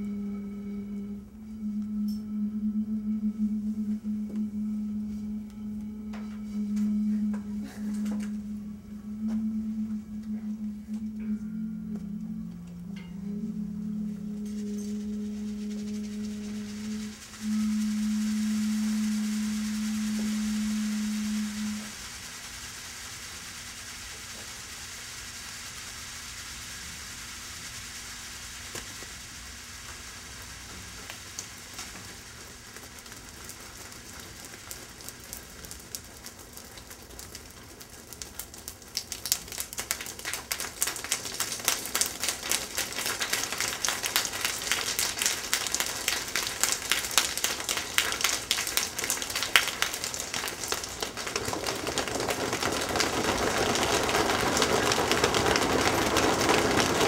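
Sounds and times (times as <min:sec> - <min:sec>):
popping candy crackling: 0:29.9 - 0:57.0.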